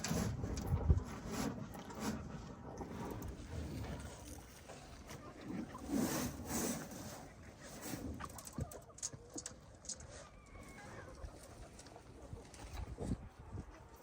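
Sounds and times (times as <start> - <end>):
chickens clucking: 4.2 - 14.0.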